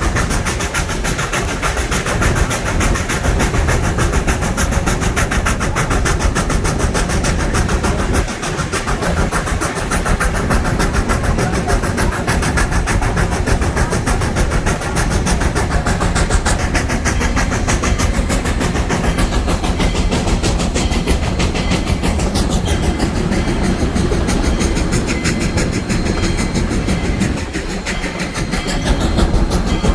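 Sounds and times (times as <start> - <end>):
steam train rumbling: 0.0 - 29.9.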